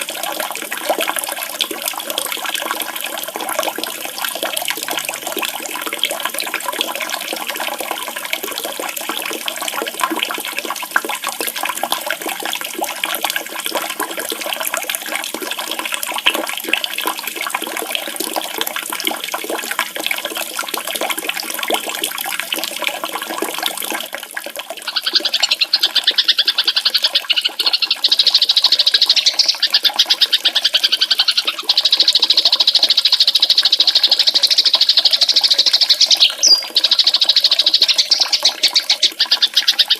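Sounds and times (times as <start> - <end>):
running water splashing: 0.0 - 39.9
buzzy songbird trill: 34.5 - 39.1.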